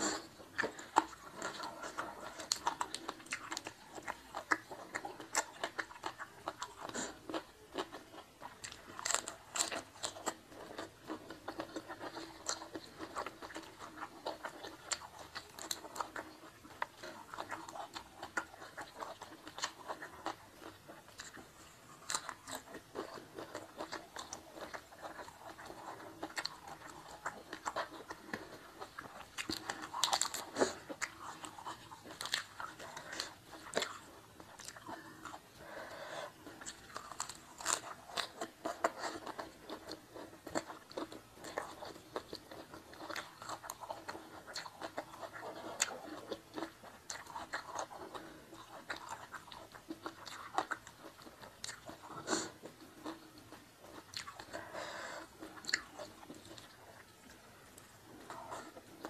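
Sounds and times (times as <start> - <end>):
crisp lettuce bites: 0.0 - 16.3
chewing and crunching food: 0.0 - 59.0.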